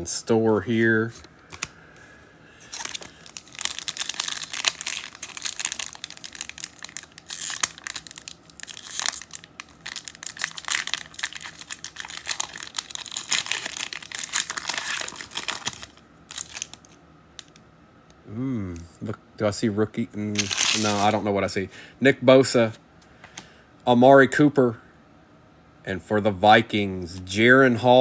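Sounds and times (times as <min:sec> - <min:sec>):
card wrapper tearing and crinkling: 0:02.6 - 0:17.6, 0:20.4 - 0:21.3.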